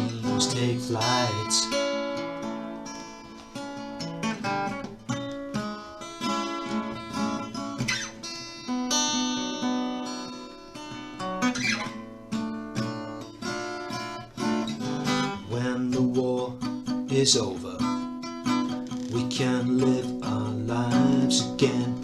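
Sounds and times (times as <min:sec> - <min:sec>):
acoustic guitar picked notes: 0:00.0 - 0:22.0
strummed guitar chords: 0:00.0 - 0:22.0.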